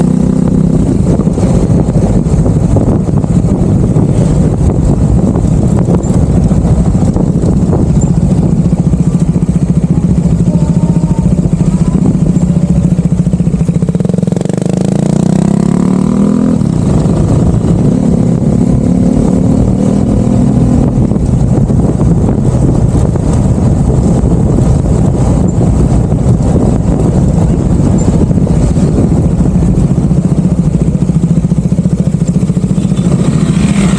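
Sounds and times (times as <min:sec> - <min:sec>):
vehicle engine running: 0:00.0 - 0:33.9.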